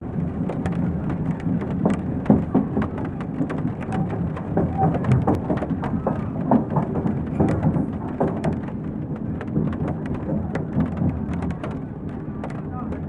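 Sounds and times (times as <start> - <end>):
moving train rumble: 0.0 - 13.0
rain ticking on window: 0.0 - 13.0
murmuring chatter: 9.4 - 13.0.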